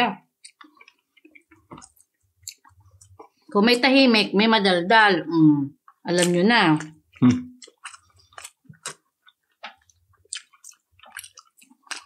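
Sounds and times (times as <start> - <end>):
wet chewing and lip-smacking: 0.4 - 3.5, 5.9 - 12.0.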